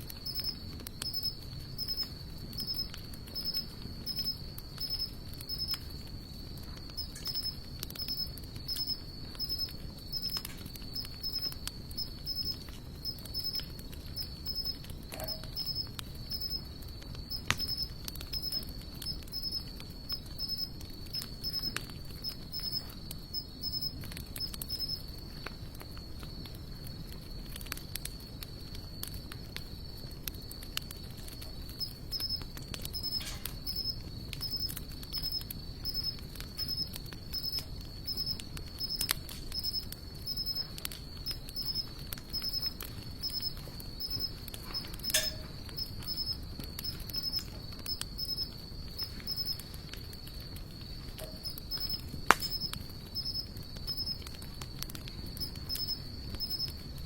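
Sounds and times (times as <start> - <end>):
insect chirping pulse: 0.0 - 25.3, 30.9 - 54.4, 55.2 - 57.0
wood fire crackling and popping: 0.0 - 57.0
insect trilling: 0.2 - 5.8, 7.0 - 16.6, 17.3 - 25.0, 31.8 - 49.6, 51.4 - 54.2, 55.4 - 56.7.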